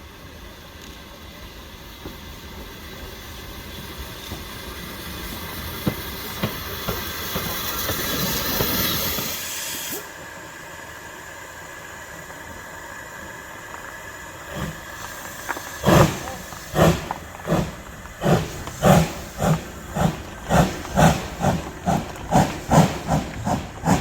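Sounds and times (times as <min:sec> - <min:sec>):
steam locomotive hissing: 0:00.0 - 0:24.0
low rumble: 0:14.4 - 0:24.0.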